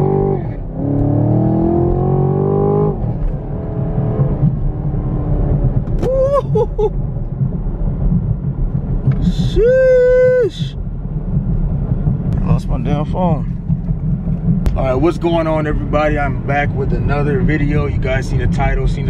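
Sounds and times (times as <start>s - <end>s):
car engine accelerating hard: 0.0s - 6.2s.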